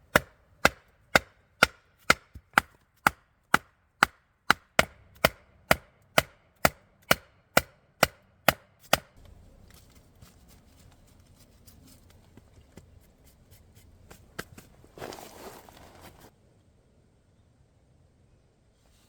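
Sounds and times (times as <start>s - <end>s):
strikes on wood: 0.1s - 9.2s
handling and rustling: 9.2s - 16.3s.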